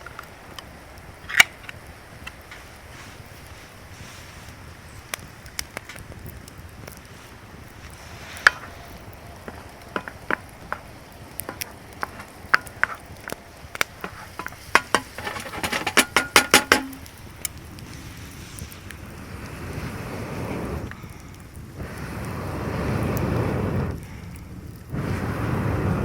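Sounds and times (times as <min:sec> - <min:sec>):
metal utensil clinking on cookware: 0:14.4 - 0:17.1.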